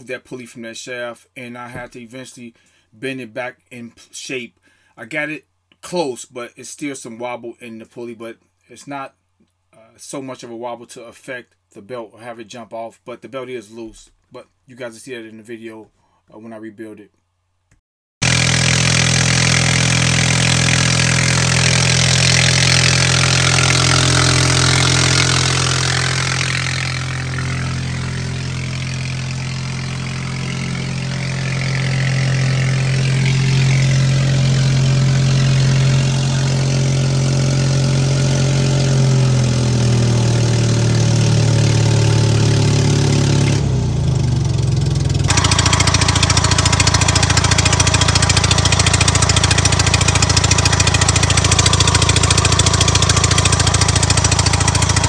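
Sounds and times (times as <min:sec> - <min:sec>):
skid steer engine running: 0:18.2 - 0:55.0.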